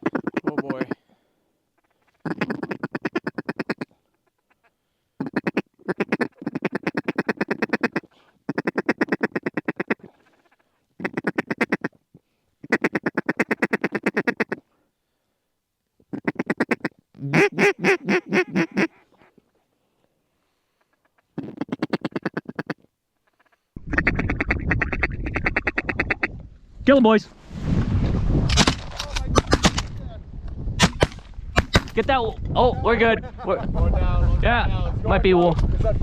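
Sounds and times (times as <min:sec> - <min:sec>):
duck call quacking: 0:00.0 - 0:01.0, 0:01.8 - 0:11.9, 0:12.6 - 0:14.6, 0:16.1 - 0:19.3, 0:20.8 - 0:26.3.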